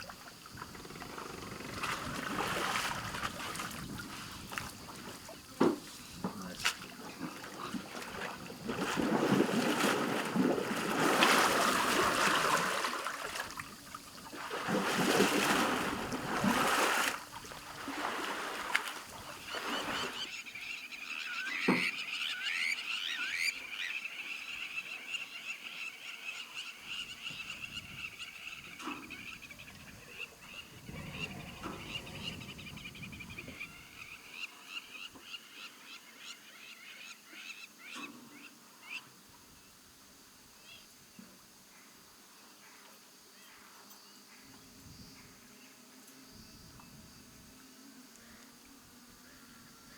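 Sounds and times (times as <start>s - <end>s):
water splashing: 0.0s - 20.3s
frogs calling: 0.0s - 39.2s.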